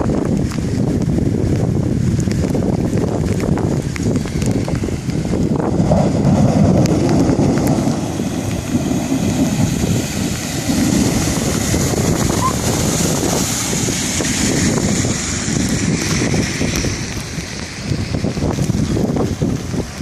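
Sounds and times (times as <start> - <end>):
wind buffeting microphone: 0.0 - 20.0
rushing hiss: 5.9 - 18.0.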